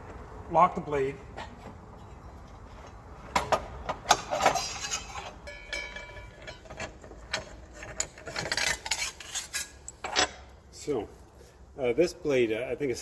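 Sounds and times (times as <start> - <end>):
short metallic ring: 4.6 - 6.7.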